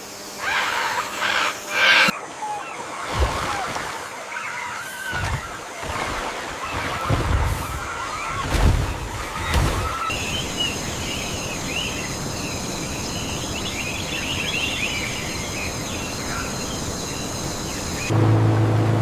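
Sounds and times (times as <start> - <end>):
high insect drone: 0.0 - 2.4, 10.1 - 18.1
birds chirping: 0.2 - 18.1.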